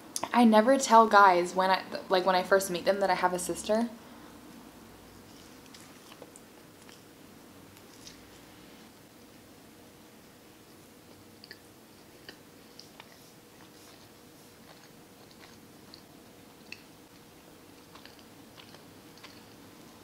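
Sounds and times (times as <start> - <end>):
person chewing with wet mouth clicks: 11.1 - 14.0, 14.6 - 19.8.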